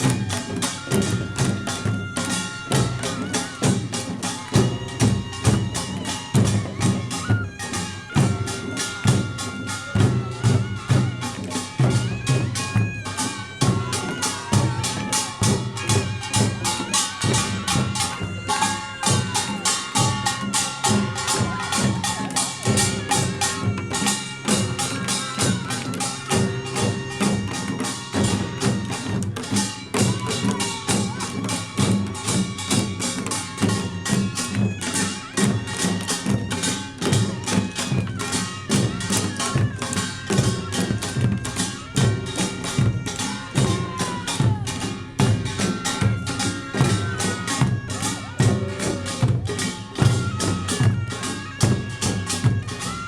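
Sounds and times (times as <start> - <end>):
drum beats: 0.0 - 53.0.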